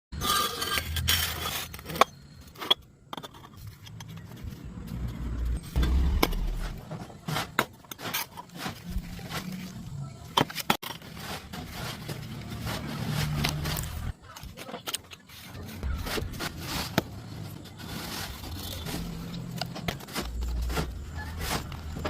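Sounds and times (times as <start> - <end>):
scraping: 0.2 - 22.0
low rumble: 4.8 - 7.0.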